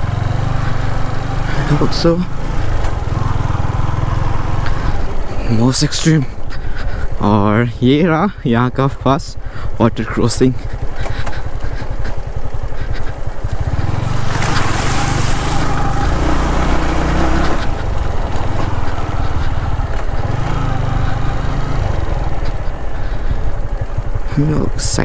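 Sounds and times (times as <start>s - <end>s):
motorcycle engine revving: 0.0s - 7.5s, 10.6s - 24.7s
water splashing: 13.9s - 18.9s.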